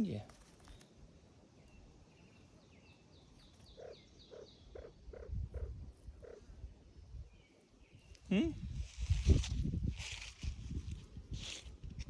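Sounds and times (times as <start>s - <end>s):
grouse clucking calls: 3.4s - 6.7s.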